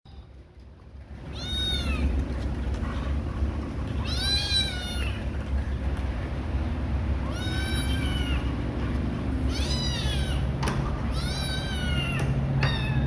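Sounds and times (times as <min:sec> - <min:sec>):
kitten meowing: 0:01.3 - 0:02.1, 0:04.0 - 0:05.2, 0:07.3 - 0:08.5, 0:09.4 - 0:10.5, 0:11.1 - 0:13.0.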